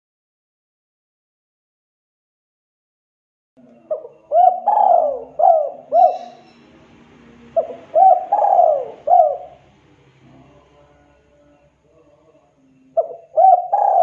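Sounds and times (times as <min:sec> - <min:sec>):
dove cooing: 0:03.6 - 0:10.6, 0:13.0 - 0:14.0.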